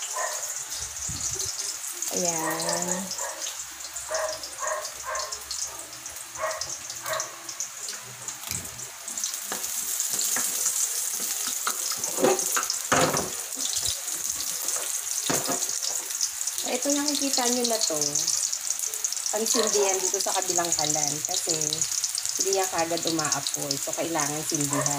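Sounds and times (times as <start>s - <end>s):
onion and garlic sizzling in oil: 0.0s - 24.9s
spatula scraping and knocking wok: 8.4s - 16.2s.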